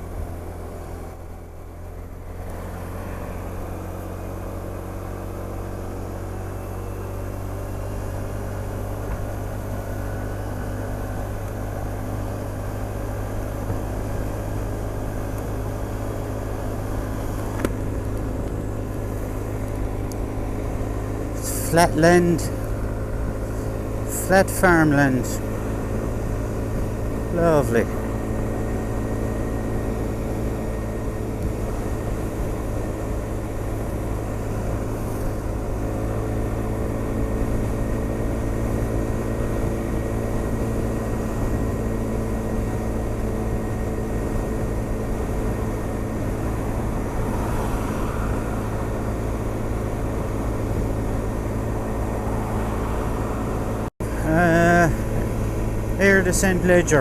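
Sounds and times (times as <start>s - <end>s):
scooter engine running: 0.0s - 57.0s
low rumble: 46.2s - 56.7s.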